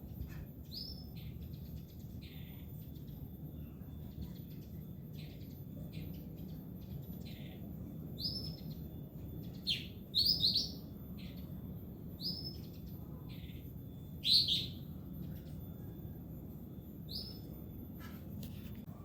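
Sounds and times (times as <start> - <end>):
steady low hum: 0.0 - 19.0
bird high chirps: 3.8 - 11.6, 12.2 - 16.2, 16.9 - 17.6.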